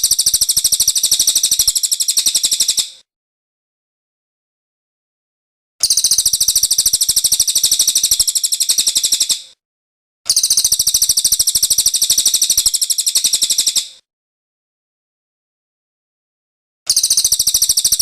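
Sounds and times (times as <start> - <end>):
songbird high-pitched trill: 0.0 - 2.9, 5.8 - 9.4, 10.3 - 13.8, 16.9 - 18.0.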